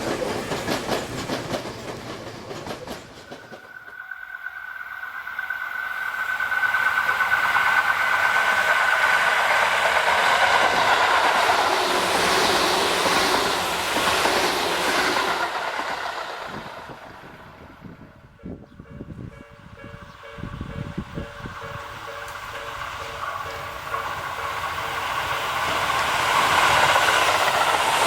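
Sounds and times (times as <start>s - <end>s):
wheels clattering on rails: 0.0s - 17.0s, 19.0s - 28.0s
electric train passing: 0.0s - 28.0s
steady high tone: 3.4s - 9.6s, 18.4s - 28.0s.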